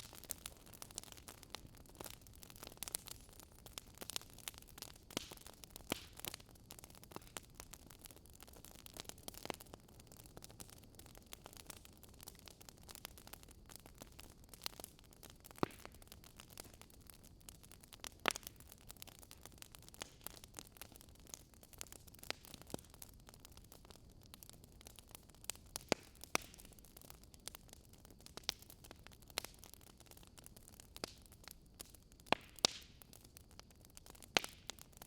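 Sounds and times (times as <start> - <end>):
soft fire hiss: 0.0 - 11.9
burning wood crackling: 0.0 - 35.0
fire pops and snaps: 0.0 - 35.0.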